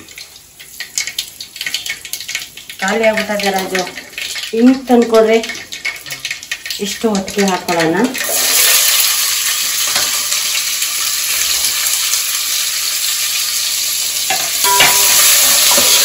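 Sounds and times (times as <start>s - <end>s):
ladle stirring in pot: 0.0s - 9.0s, 14.3s - 16.0s
vegetables sizzling in hot oil: 0.0s - 16.0s.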